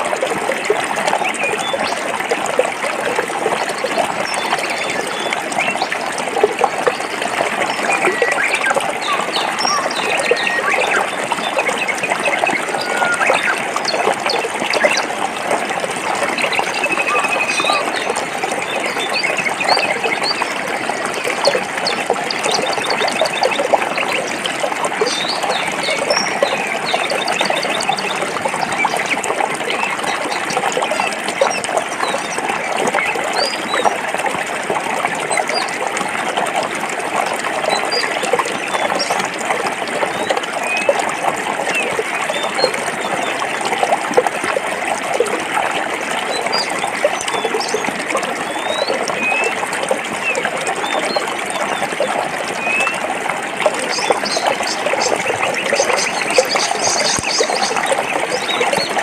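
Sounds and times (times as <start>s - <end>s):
stream babbling over rocks: 0.0s - 59.0s
small birds chirping: 7.7s - 15.1s, 16.4s - 20.4s.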